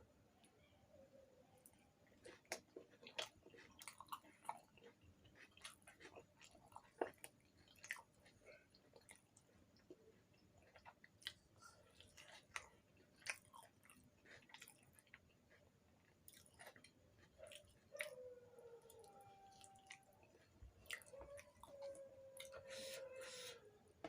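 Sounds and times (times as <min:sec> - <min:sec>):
person chewing: 0:01.7 - 0:18.3, 0:18.9 - 0:23.5.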